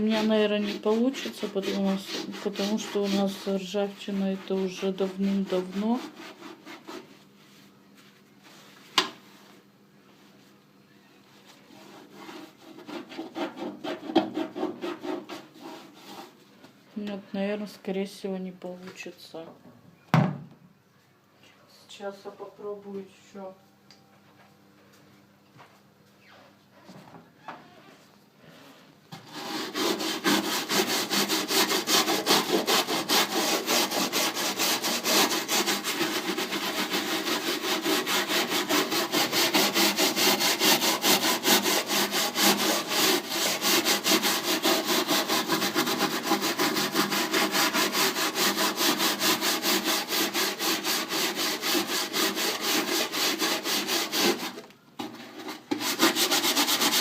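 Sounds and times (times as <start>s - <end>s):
scrubbing metal surface: 0.0s - 7.1s, 29.3s - 54.6s.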